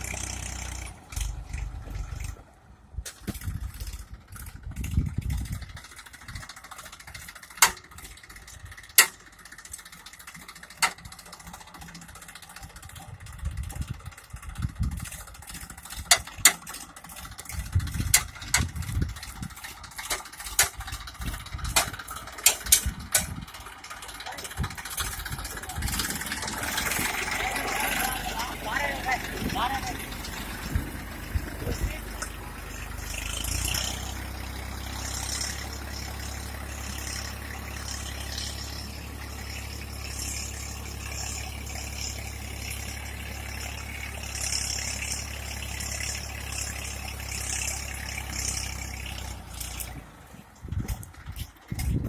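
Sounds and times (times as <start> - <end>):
tractor engine running: 0.0 - 52.0.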